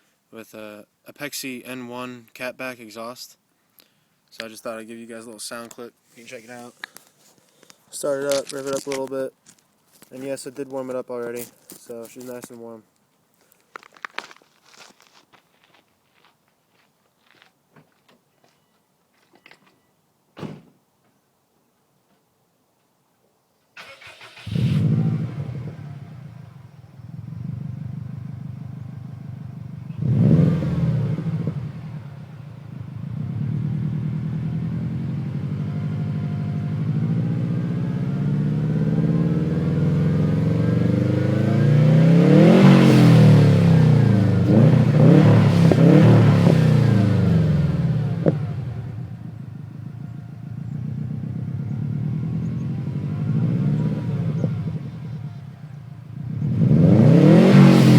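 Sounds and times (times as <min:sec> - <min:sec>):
car engine starting and revving: 0:23.8 - 0:57.9.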